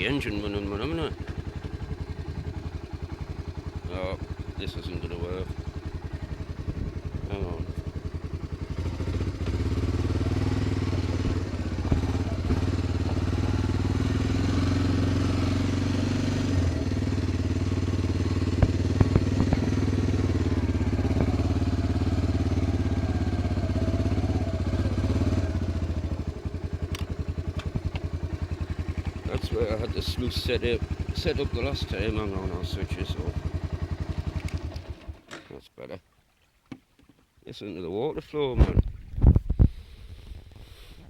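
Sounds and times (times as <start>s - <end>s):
engine idling: 0.0s - 35.4s
sharp clicks: 26.9s - 28.1s.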